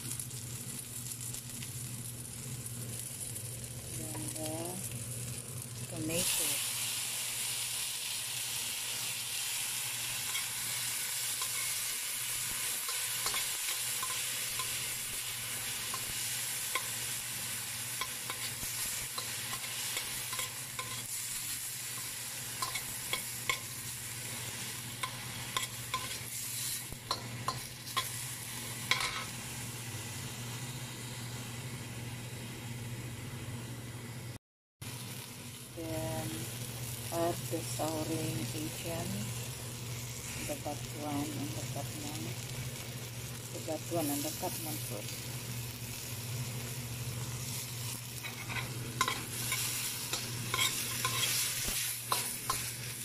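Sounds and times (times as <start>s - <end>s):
vegetables sizzling in oil: 0.0s - 53.0s
metal spoon scraping a wok: 11.2s - 12.1s, 12.7s - 15.0s, 18.0s - 21.2s, 21.8s - 23.8s, 25.0s - 28.2s, 28.9s - 29.3s, 48.2s - 52.8s.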